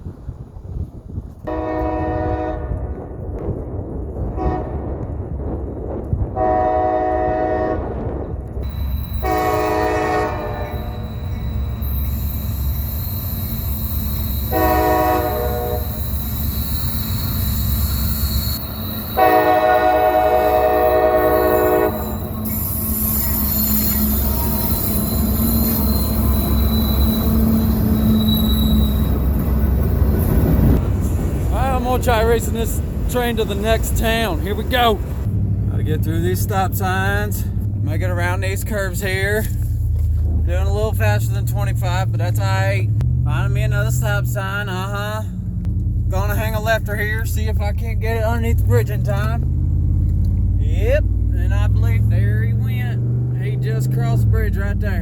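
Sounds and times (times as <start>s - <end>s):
low rumble of train: 0.0s - 55.0s
locomotive air horn blasts: 1.5s - 2.9s, 4.3s - 4.9s, 6.4s - 8.0s, 9.1s - 12.0s, 14.2s - 16.4s, 17.4s - 29.5s
high-pitched wheel squeal: 8.6s - 31.2s.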